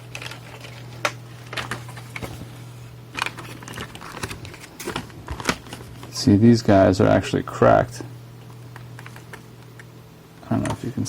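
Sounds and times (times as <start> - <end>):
clicks taps and rattles of handling: 10.5 - 10.9.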